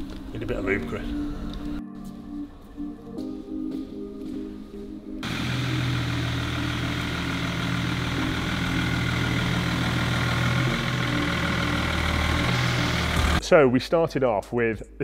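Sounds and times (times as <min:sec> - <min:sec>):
car engine idling: 0:05.2 - 0:13.4.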